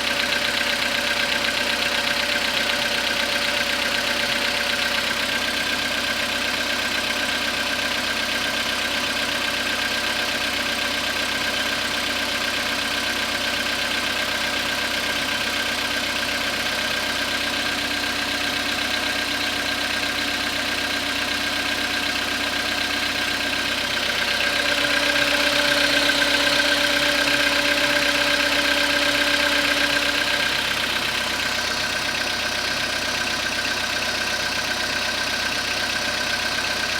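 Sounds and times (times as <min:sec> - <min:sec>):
car engine idling with knock: 0:00.0 - 0:36.9.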